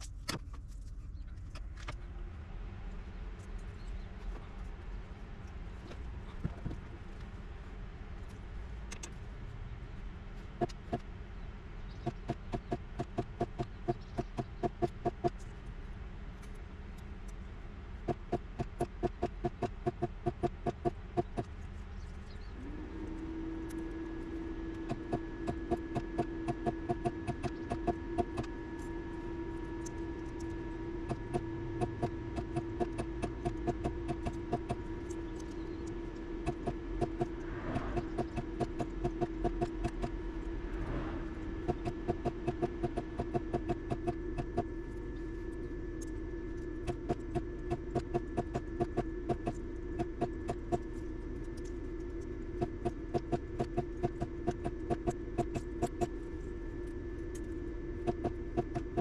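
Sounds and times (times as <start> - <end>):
electrical hum: 0.0 - 59.0
fast even ticking: 31.1 - 35.5, 36.4 - 40.1, 41.6 - 44.7.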